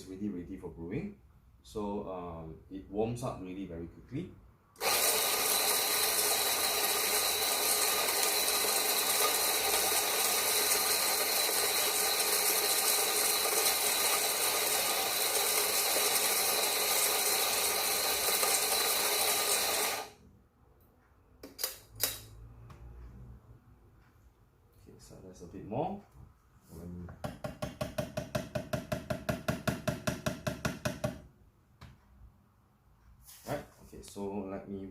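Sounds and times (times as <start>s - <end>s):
coffee grinder grinding: 4.8s - 20.2s.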